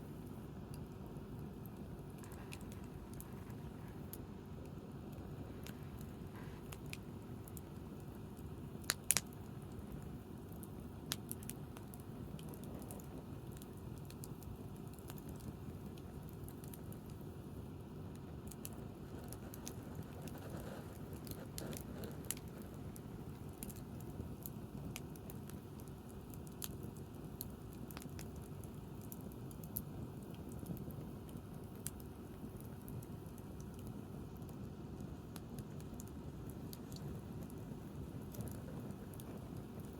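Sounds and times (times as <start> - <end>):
low background noise: 0.0 - 39.9
campfire crackling and popping: 0.1 - 39.9.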